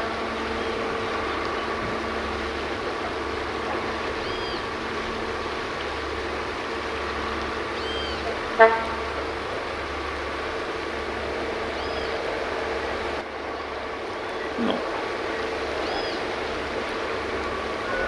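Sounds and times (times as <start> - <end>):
railcar droning: 0.0 - 18.0
train horn toot: 7.8 - 9.4.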